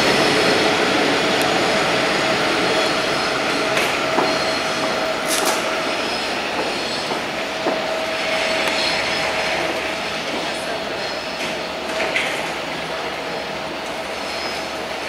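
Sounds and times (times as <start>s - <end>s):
train rolling over track: 0.0s - 15.0s
carriage wheels squealing: 2.7s - 7.3s.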